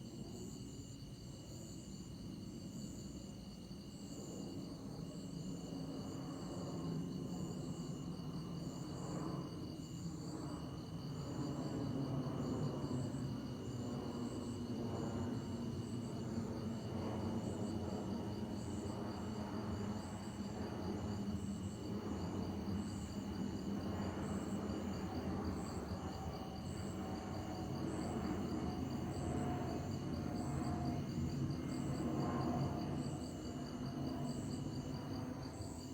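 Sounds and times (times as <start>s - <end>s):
jet engine rumble overhead: 0.0s - 35.9s
night insects trilling: 0.0s - 35.9s.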